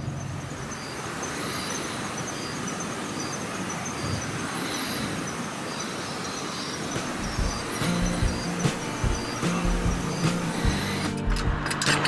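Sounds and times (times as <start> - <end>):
car road and engine noise: 6.8 - 12.0.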